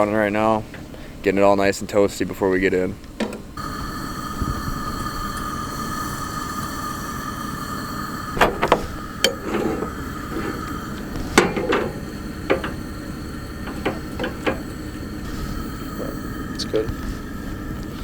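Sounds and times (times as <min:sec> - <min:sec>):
pickup truck idling: 0:00.0 - 0:18.0.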